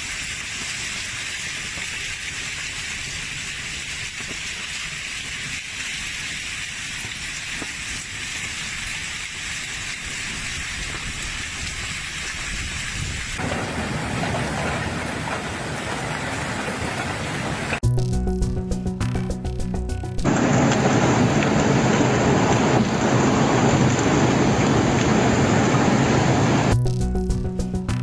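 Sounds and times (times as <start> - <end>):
heavy rain pouring: 0.0 - 17.8, 20.3 - 26.8
faint hail taps: 13.4 - 17.8, 20.3 - 26.8.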